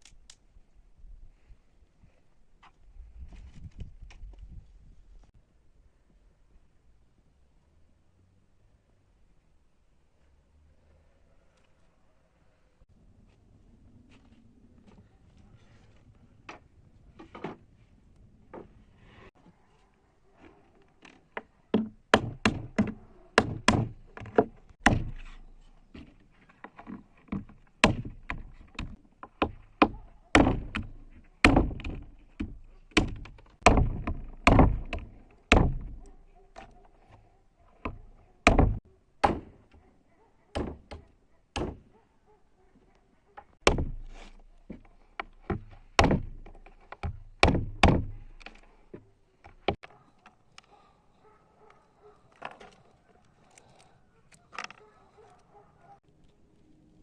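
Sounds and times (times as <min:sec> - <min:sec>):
chopping strikes on wood: 0:21.7 - 0:25.5, 0:27.3 - 0:36.0, 0:37.9 - 0:39.6, 0:40.6 - 0:41.0, 0:41.6 - 0:41.8, 0:43.6 - 0:48.6.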